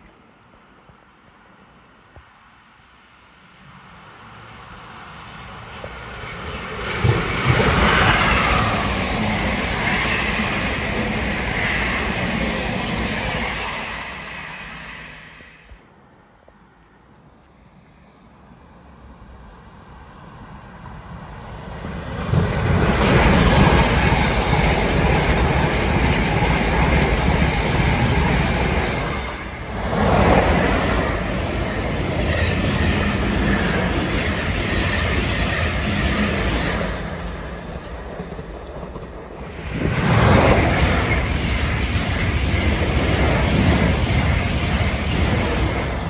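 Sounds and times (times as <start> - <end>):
train passing at speed: 0.0 - 46.0
wheels rumbling on rails: 18.8 - 46.0.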